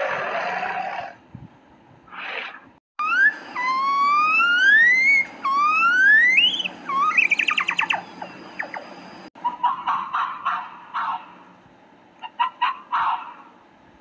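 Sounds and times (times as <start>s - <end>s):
monkey whooping calls: 3.6s - 8.8s.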